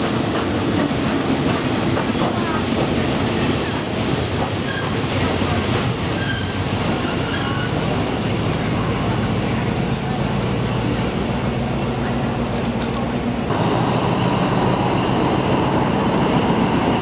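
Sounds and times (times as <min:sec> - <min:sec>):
train rumbling on rails: 0:00.0 - 0:17.0
high-pitched wheel squeals: 0:04.4 - 0:10.8.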